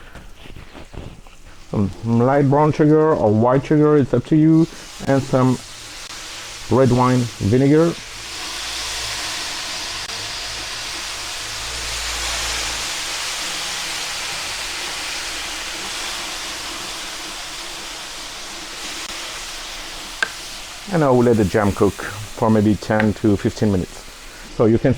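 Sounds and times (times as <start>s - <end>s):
onions sizzling on a griddle: 1.3s - 24.8s.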